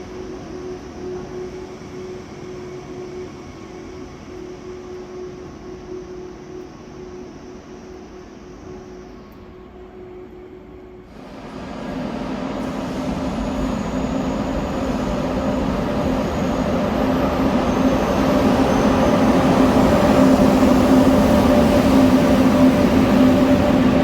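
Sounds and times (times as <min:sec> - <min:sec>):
high-speed train approaching: 0:00.0 - 0:24.0.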